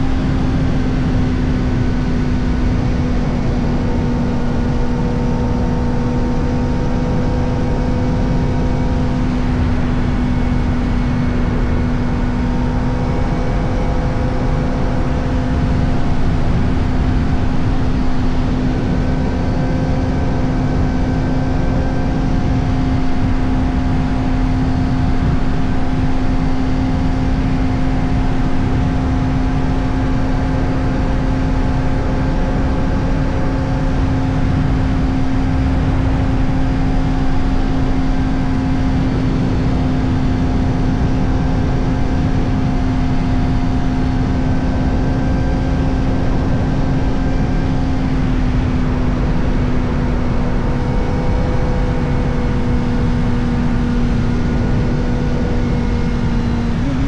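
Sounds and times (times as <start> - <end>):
motorcycle engine at high revs: 0.0 - 57.0
wind noise on microphone: 0.0 - 57.0.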